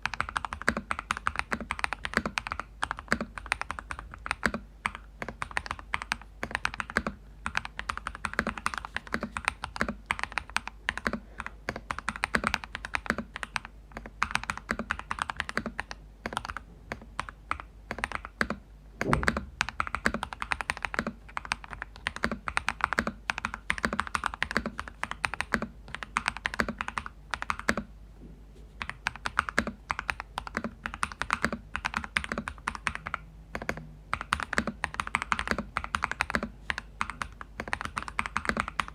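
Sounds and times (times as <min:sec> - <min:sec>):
fast mechanical keyboard typing: 0:00.0 - 0:27.9, 0:28.8 - 0:38.9
heavy knock: 0:19.0 - 0:19.6.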